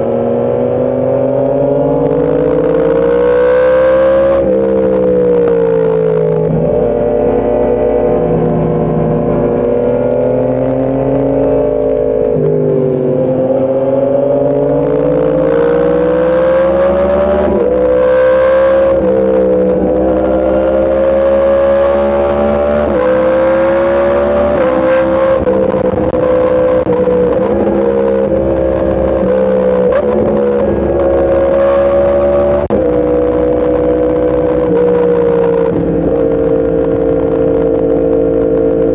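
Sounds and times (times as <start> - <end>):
motorcycle engine shifting gears: 0.0 - 38.9
wind noise: 0.0 - 38.9.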